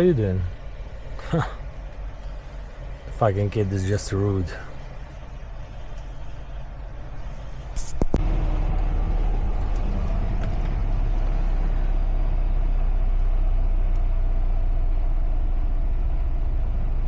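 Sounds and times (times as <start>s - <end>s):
truck diesel engine idling: 0.0s - 17.0s.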